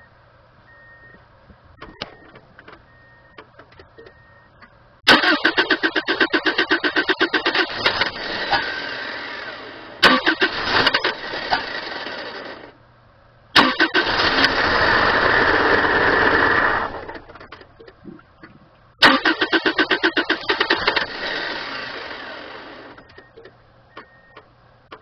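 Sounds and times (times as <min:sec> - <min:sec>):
starter cranking engine: 0:05.1 - 0:12.7, 0:13.6 - 0:17.5, 0:19.0 - 0:23.1.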